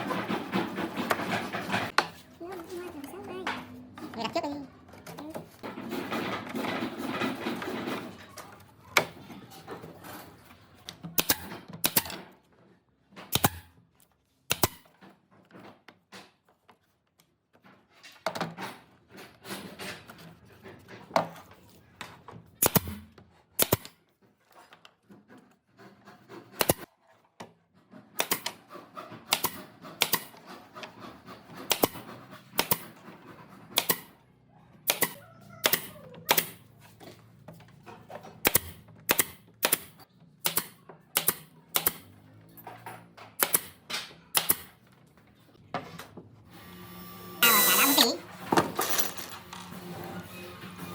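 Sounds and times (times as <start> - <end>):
tools knocking on wood: 0.0 - 2.2.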